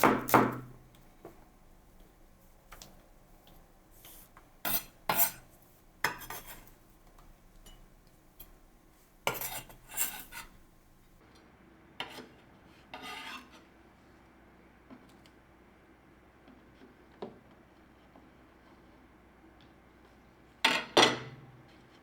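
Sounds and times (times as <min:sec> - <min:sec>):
utensils and dishes clinking: 0:09.3 - 0:10.8.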